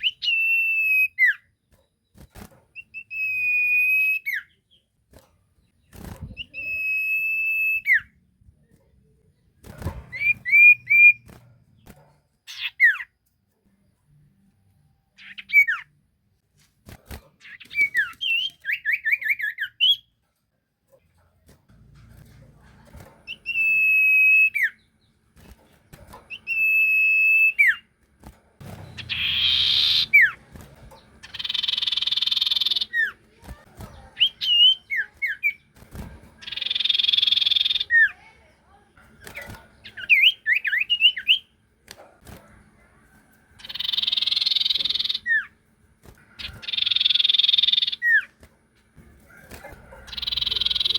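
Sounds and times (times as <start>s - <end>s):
songbird trills and whistles: 0.0s - 1.5s, 2.8s - 4.9s, 6.4s - 8.2s, 31.2s - 33.2s, 36.4s - 38.1s, 43.6s - 45.5s, 46.4s - 48.3s, 50.1s - 50.9s
songbird whistling: 6.4s - 8.1s, 43.6s - 45.5s.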